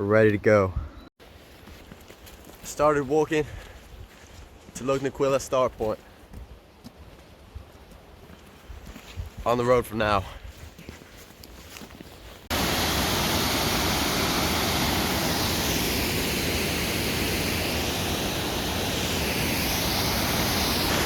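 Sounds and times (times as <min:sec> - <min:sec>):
loud steady rushing noise: 0:12.5 - 0:21.0.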